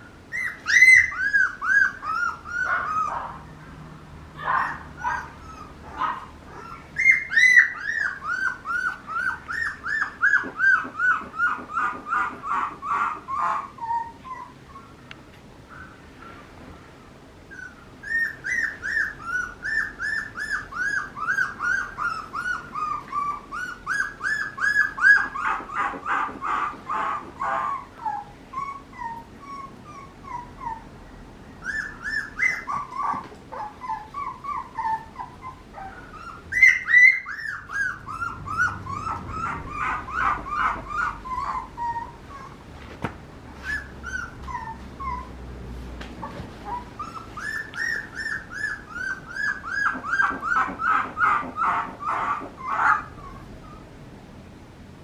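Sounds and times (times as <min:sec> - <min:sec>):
puppy whining in high yips: 0:00.3 - 0:03.4, 0:04.4 - 0:15.0, 0:17.5 - 0:31.0, 0:31.6 - 0:42.7, 0:43.6 - 0:45.4, 0:46.2 - 0:53.9.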